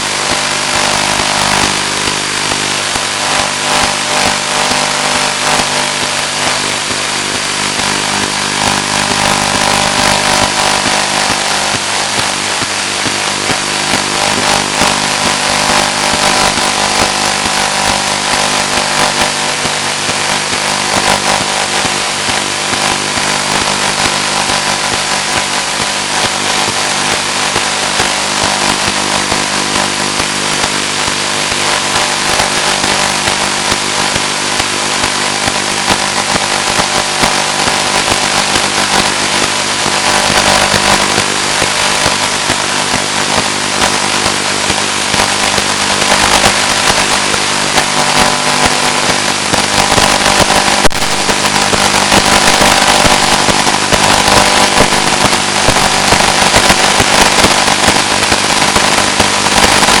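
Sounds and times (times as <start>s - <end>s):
loud hiss and buzz: 0.0s - 60.0s
constant hum: 0.2s - 29.9s.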